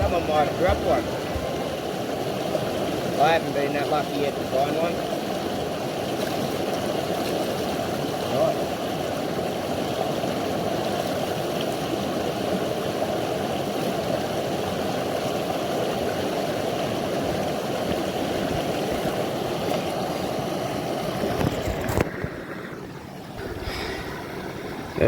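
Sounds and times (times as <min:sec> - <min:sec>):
short knock: 0:00.0 - 0:01.8
creek water flowing: 0:00.0 - 0:25.0.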